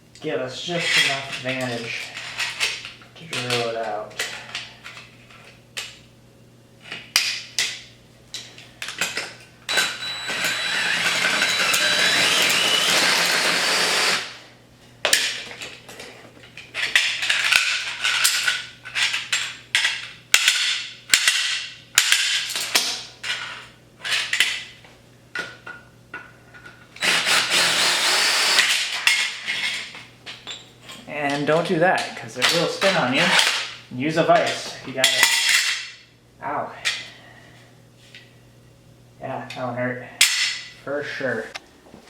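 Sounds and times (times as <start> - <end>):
cordless drill boring metal: 9.7 - 14.4, 27.0 - 29.0.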